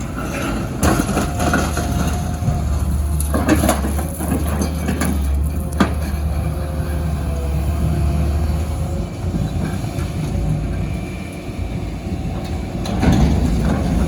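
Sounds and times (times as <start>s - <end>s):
metal crunching and banging: 0.0s - 6.7s
excavator diesel engine running: 0.0s - 14.0s.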